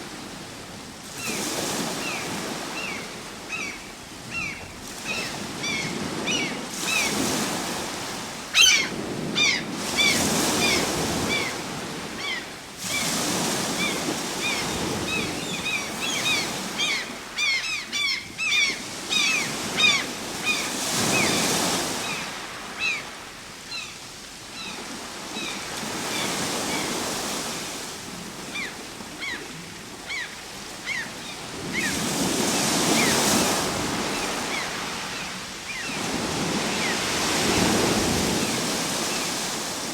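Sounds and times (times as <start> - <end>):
waves breaking: 4.1 - 17.6, 24.8 - 39.9.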